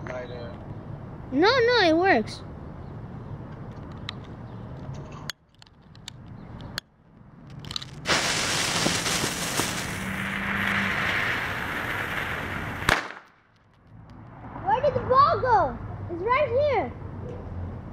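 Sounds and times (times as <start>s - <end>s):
fuse hissing and sputtering: 8.0s - 12.9s
firecracker bang: 8.0s - 13.4s.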